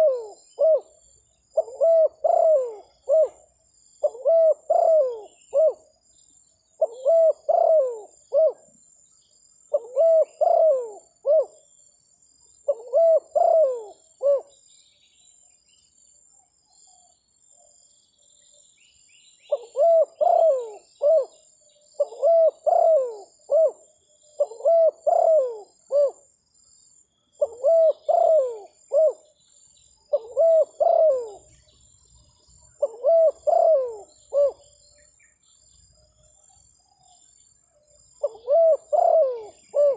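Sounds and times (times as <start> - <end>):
dove cooing: 0.0 - 1.0, 1.6 - 3.4, 4.0 - 5.9, 6.8 - 8.7, 9.7 - 11.6, 12.7 - 14.5, 19.5 - 21.4, 22.0 - 26.2, 27.4 - 29.2, 30.1 - 31.6, 32.7 - 34.7, 38.2 - 39.9
small birds chirping: 0.0 - 39.9
steady high insect-like tone: 0.0 - 39.9.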